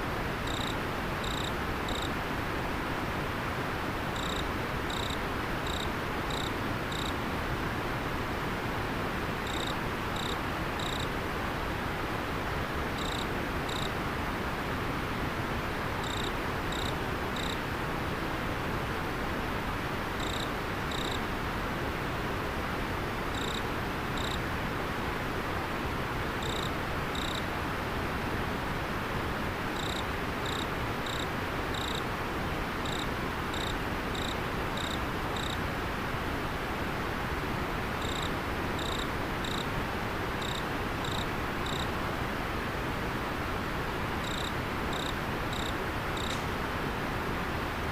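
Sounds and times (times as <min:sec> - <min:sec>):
cricket chirping: 0:00.4 - 0:02.2, 0:04.2 - 0:07.2, 0:09.4 - 0:11.1, 0:13.0 - 0:14.0, 0:16.0 - 0:17.6, 0:20.2 - 0:21.2, 0:23.3 - 0:24.4, 0:26.4 - 0:27.5, 0:29.8 - 0:32.0, 0:32.8 - 0:35.6, 0:38.0 - 0:39.7, 0:40.4 - 0:41.9, 0:44.2 - 0:46.4.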